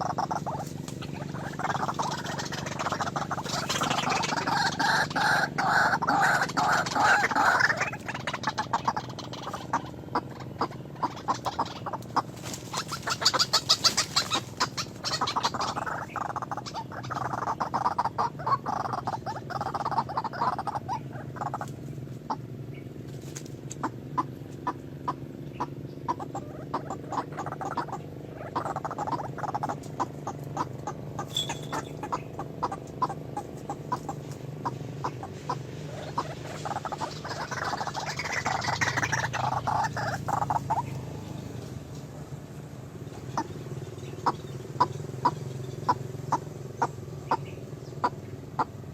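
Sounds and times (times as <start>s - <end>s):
birds calling: 0.0s - 48.9s
rapid sharp clicks and chirps: 0.0s - 48.9s
steady low hum: 0.0s - 48.9s.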